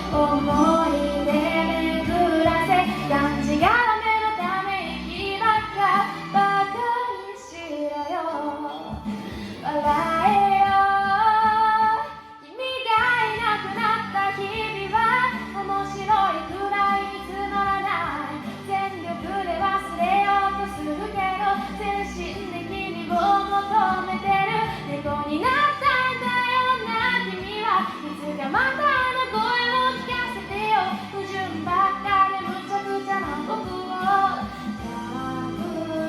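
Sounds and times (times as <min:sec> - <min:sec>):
instrumental backing track: 0:00.0 - 0:36.0
woman singing pop ballad: 0:00.0 - 0:36.0.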